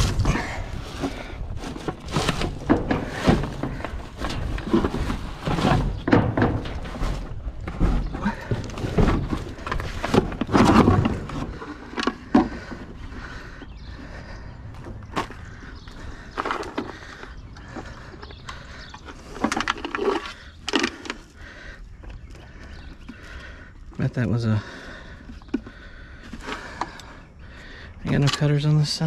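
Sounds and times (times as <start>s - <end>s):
scrap items knocking and clattering: 0.0s - 12.9s.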